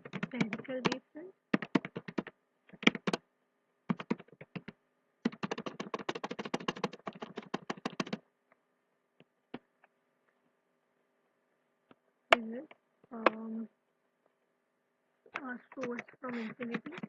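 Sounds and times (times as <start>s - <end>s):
rapid light clicking taps: 0.0s - 3.2s, 3.9s - 8.2s.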